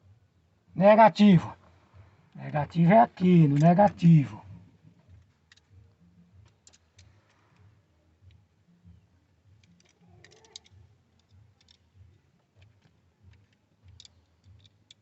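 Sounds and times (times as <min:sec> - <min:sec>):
small clicks of wires and tools: 0:05.0 - 0:05.8, 0:06.4 - 0:08.4, 0:09.6 - 0:15.0.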